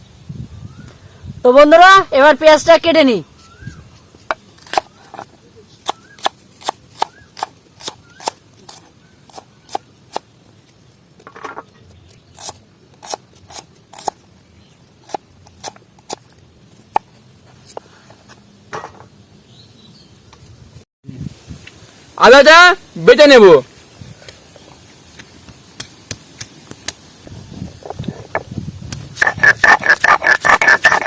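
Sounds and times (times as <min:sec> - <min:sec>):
knife cutting onion: 0:05.8 - 0:10.3, 0:12.2 - 0:14.2, 0:15.0 - 0:16.3.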